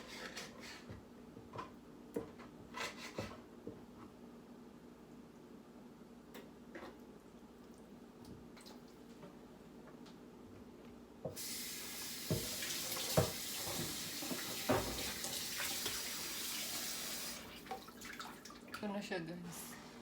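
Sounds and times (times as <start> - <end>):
tap water running into sink: 11.3 - 18.8.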